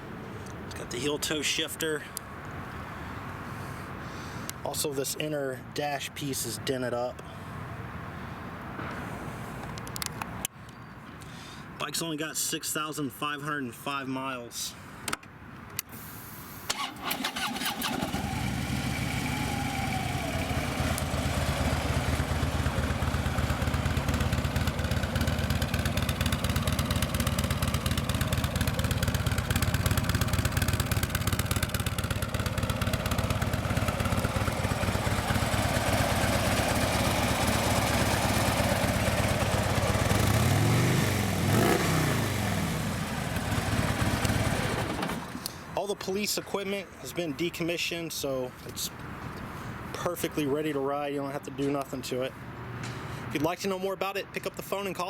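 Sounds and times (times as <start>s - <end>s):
motorcycle starter cranking: 16.7s - 21.4s
motorcycle engine idling: 16.8s - 45.2s.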